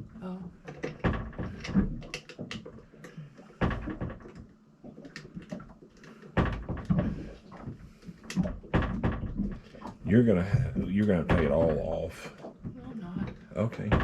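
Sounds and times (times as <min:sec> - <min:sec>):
heavy thumps: 0:06.3 - 0:07.8, 0:08.4 - 0:14.0.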